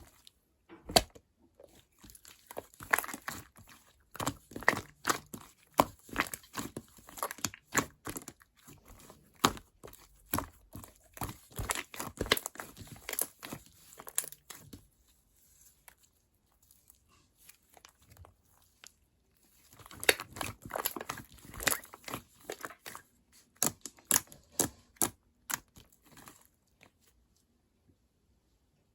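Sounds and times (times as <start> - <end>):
slime squished with sticky pops: 19.7 - 25.8.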